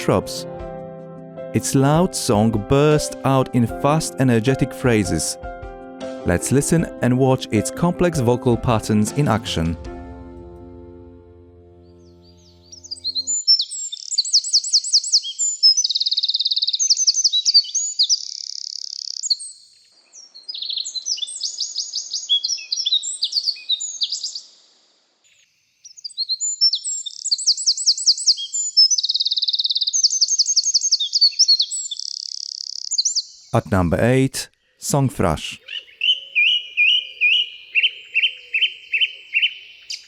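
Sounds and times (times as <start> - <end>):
bird singing trills and rattles: 12.7 - 24.6, 25.3 - 33.6, 35.6 - 40.0.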